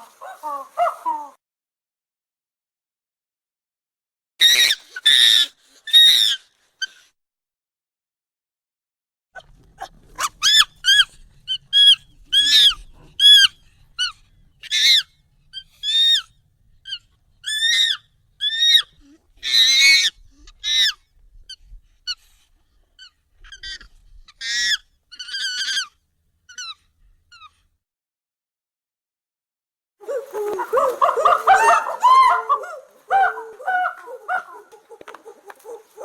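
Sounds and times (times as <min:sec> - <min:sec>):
high-pitched monkey calls: 0:00.0 - 0:01.4, 0:04.4 - 0:07.0, 0:09.8 - 0:21.0, 0:23.0 - 0:27.6, 0:30.0 - 0:36.0.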